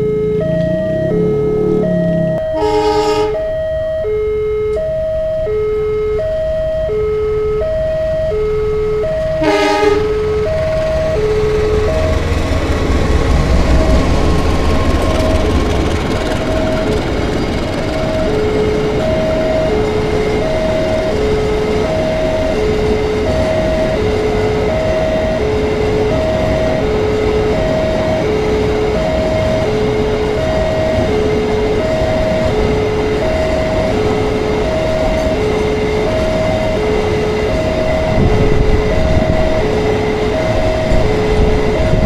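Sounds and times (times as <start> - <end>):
diesel locomotive engine rumble: 0.0 - 42.0
level-crossing warning alarm: 0.0 - 42.0
train horn blasts: 2.4 - 3.5, 9.4 - 10.3
freight wagons rumbling over rails: 9.1 - 42.0.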